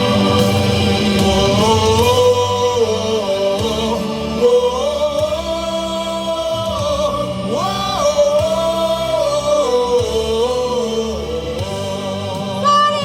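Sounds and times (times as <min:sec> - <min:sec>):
crowd singing along: 0:00.0 - 0:13.0
loud cheer song playing: 0:00.0 - 0:13.0.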